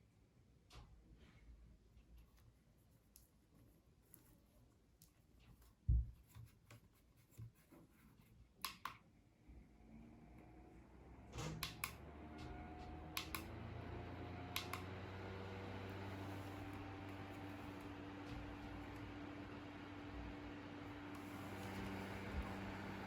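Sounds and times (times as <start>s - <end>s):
small fan motor humming: 9.6s - 23.0s
fan switch clicks: 11.4s - 13.6s, 14.4s - 15.0s
air rushing from fan: 12.5s - 23.0s.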